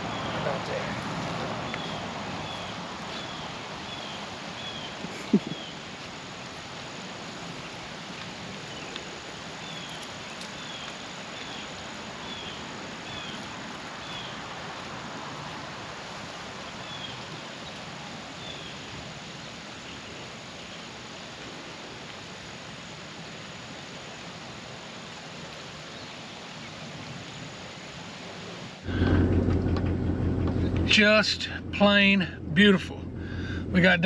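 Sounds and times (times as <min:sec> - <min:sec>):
outdoor background noise: 0:00.0 - 0:34.0.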